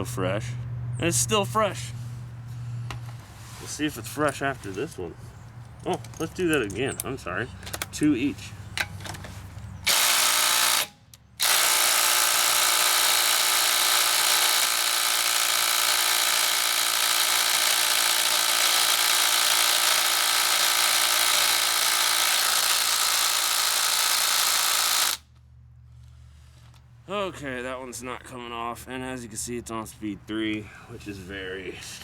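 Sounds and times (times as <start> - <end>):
impact driver hammering: 9.9 - 25.2.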